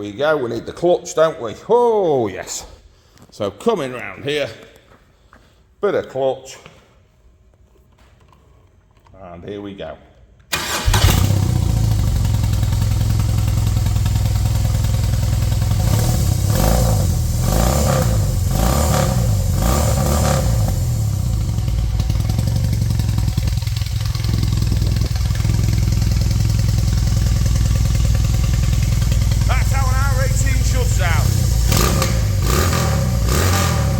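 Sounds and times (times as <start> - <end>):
motorcycle engine revving: 10.6 - 33.9.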